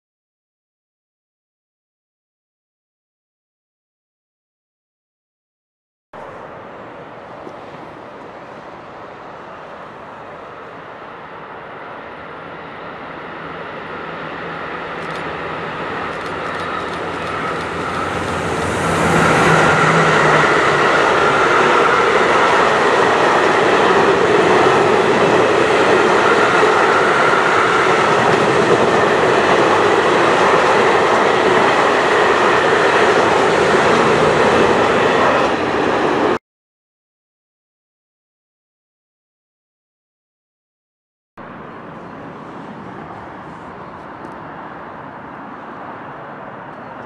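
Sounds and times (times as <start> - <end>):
train passing close by: 6.2 - 36.4, 41.4 - 47.0
wheels running on rails: 13.2 - 36.3.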